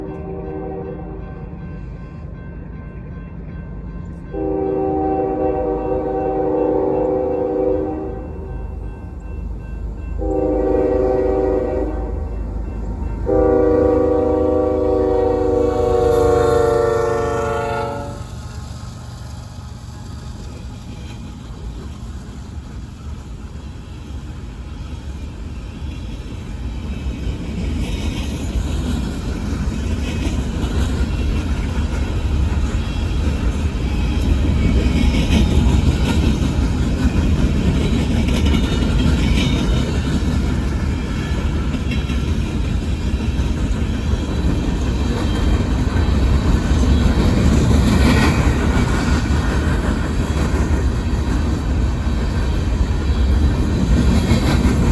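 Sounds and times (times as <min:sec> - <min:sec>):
train rumbling past: 0:00.0 - 0:54.9
wheels clanking and squealing on rail: 0:18.2 - 0:54.9.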